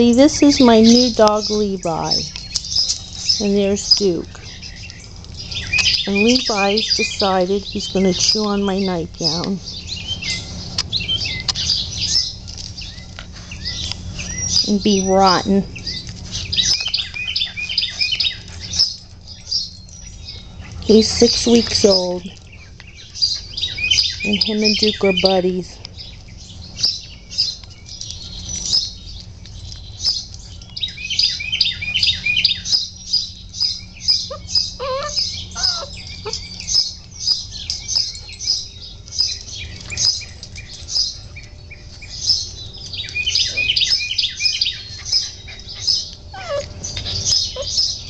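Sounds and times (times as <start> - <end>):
small birds chirping: 0.0 - 48.0
puppy whimpers: 34.2 - 36.9, 45.0 - 48.0.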